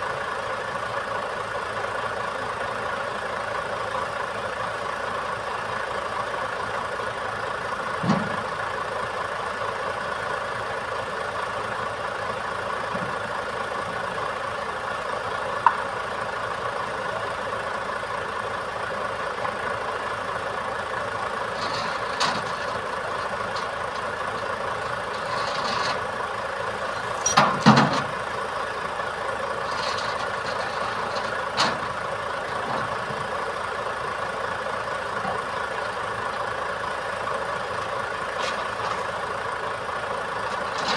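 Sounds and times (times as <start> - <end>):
truck engine running: 0.0 - 40.9
sharp metal clanks: 27.0 - 28.1.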